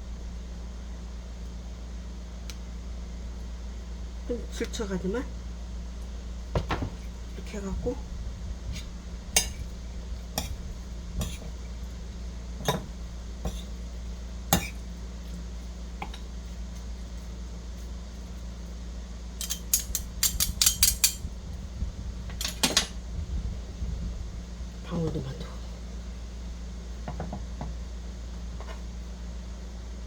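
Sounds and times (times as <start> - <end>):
utensils clinking on dishes: 19.4 - 21.2.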